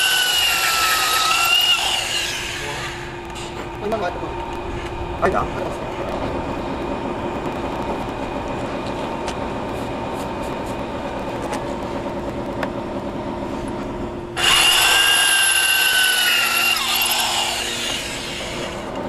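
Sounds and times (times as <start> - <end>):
drill bit screeching on tile: 0.0 - 3.1, 14.4 - 18.9
power drill humming: 0.0 - 3.1, 14.4 - 19.0.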